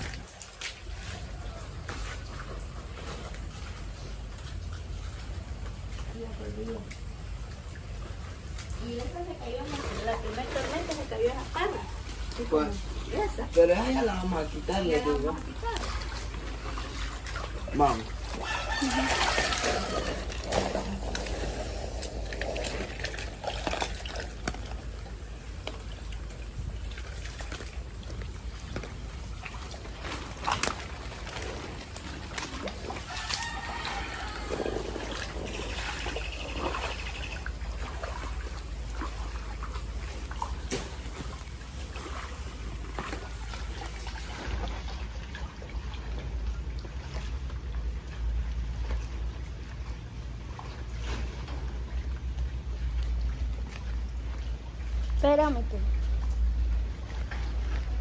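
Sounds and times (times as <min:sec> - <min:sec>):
water trickling and sloshing: 0:00.0 - 0:58.0
low rumble: 0:15.2 - 0:33.0.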